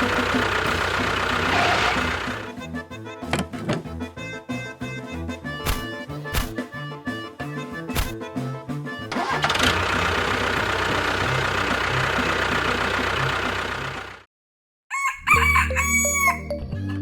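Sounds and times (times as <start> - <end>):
engine running with low rumble: 0.0 - 6.6, 8.9 - 14.3.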